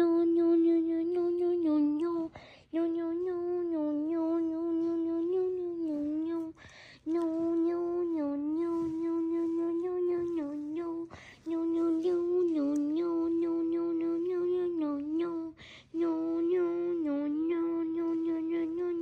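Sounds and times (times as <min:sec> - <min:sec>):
quick breath: 0:06.6 - 0:07.0.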